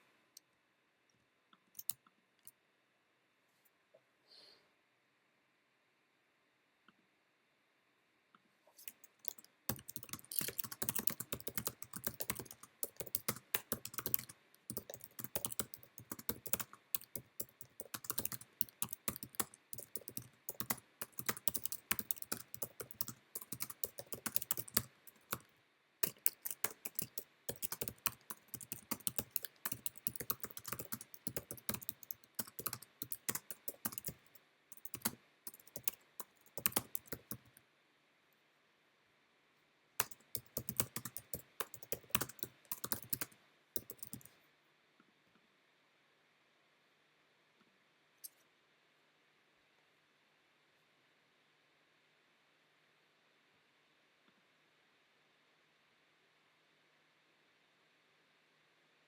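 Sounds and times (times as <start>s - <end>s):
fast typing on keyboard: 8.9s - 37.5s, 40.0s - 44.3s.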